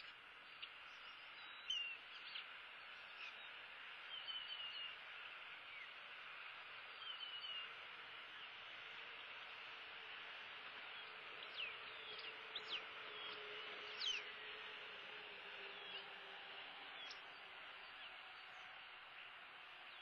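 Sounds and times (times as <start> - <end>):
birds chirping and calling: 0.0 - 5.0, 11.0 - 14.3, 17.0 - 17.2
steady outdoor hiss: 0.0 - 20.0.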